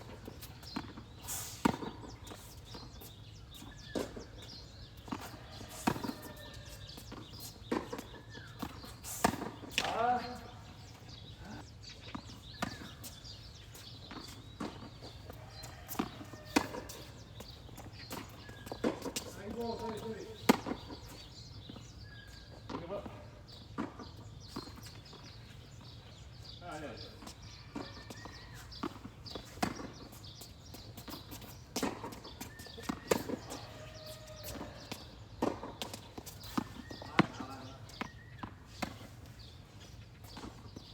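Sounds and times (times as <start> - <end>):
tennis ball bouncing on court: 3.9 - 10.3, 12.1 - 21.8, 27.2 - 39.3
tennis ball struck by rackets: 6.8 - 10.1, 12.1 - 13.0, 15.9 - 20.9, 28.8 - 30.1, 31.0 - 39.1
racket striking tennis ball: 7.3 - 10.0.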